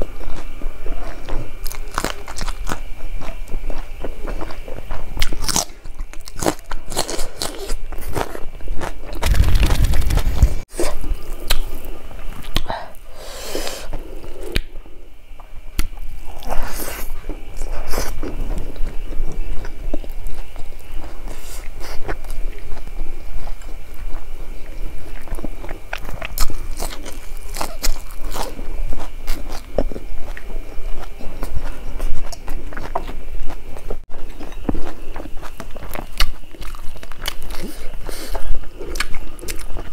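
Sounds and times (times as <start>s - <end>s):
close chewing with wet crunches: 0.0s - 9.9s, 15.4s - 39.9s.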